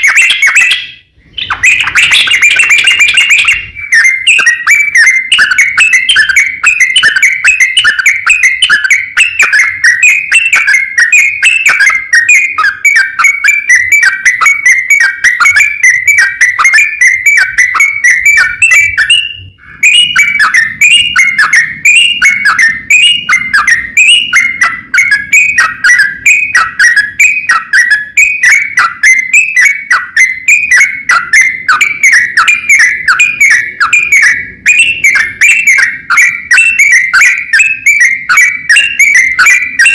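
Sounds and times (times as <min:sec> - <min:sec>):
bird singing whistled chatter: 0:00.0 - 0:39.9.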